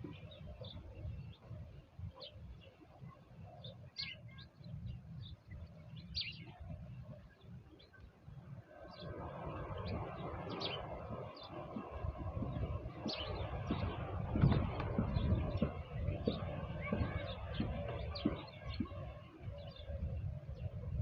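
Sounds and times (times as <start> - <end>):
small birds chirping: 0.0 - 21.0
steady rushing noise: 8.9 - 21.0
low outdoor rumble: 9.5 - 21.0.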